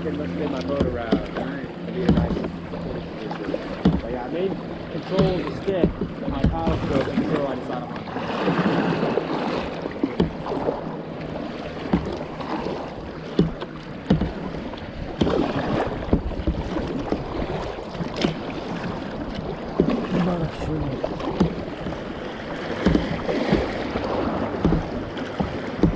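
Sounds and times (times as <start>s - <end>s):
paddle strokes: 0.0s - 25.9s
running water: 0.0s - 25.9s
sharp water splashes: 0.0s - 25.9s.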